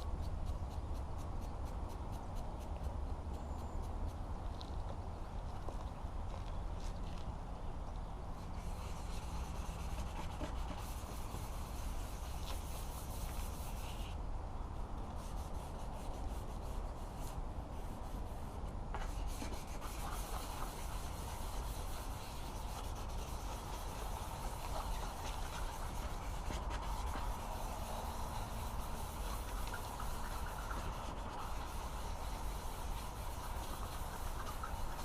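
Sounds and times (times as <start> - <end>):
sandpaper rubbing on plastic: 8.6 - 14.2, 15.2 - 35.0.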